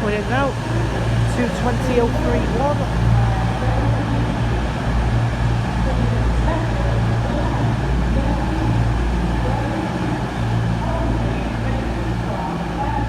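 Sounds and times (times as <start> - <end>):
diesel engines idling: 0.0 - 13.0.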